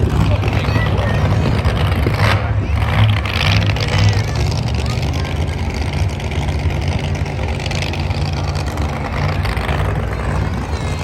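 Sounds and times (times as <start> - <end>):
truck engine deep rumble: 0.0 - 11.0.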